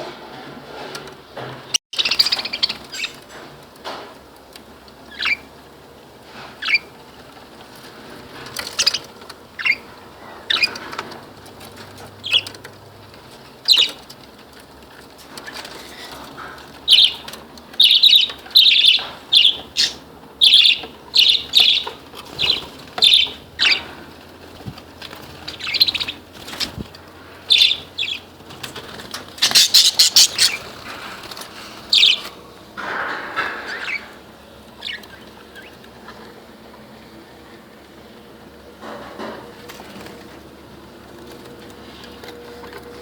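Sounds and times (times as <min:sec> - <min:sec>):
budgerigars chirping: 0:02.0 - 0:03.2, 0:05.1 - 0:05.5, 0:06.6 - 0:06.9, 0:08.6 - 0:11.0, 0:12.2 - 0:12.6, 0:13.7 - 0:14.0, 0:16.4 - 0:24.0, 0:25.4 - 0:26.8, 0:27.5 - 0:28.3, 0:29.4 - 0:30.8, 0:31.9 - 0:32.3, 0:33.5 - 0:34.1, 0:34.8 - 0:36.2.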